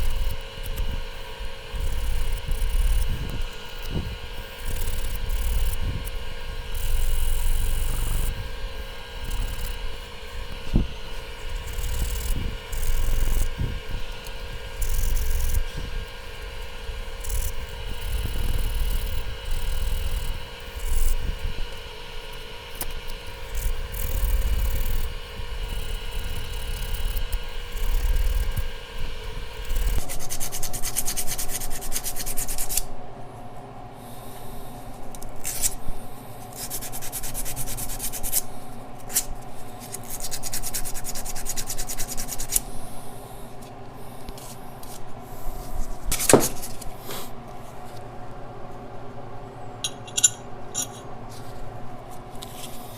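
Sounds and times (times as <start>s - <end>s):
steady multi-tone hum: 0.0s - 52.9s
sandpaper rubbing on metal: 30.0s - 32.8s, 36.5s - 38.4s, 40.0s - 42.6s.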